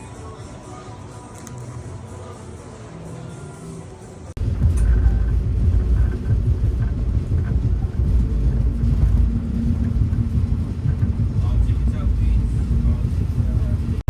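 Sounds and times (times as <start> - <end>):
music: 0.0 - 7.0
low rumble of moving vehicle: 0.0 - 14.0.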